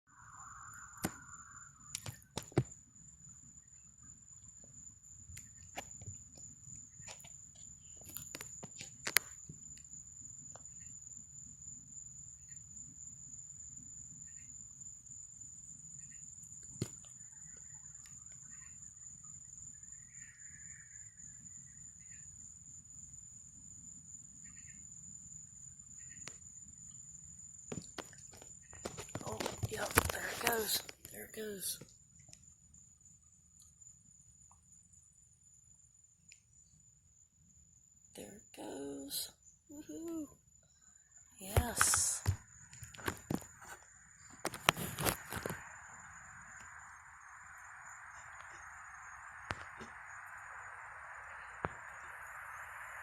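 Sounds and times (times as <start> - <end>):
night insects droning: 0.1 - 53.0.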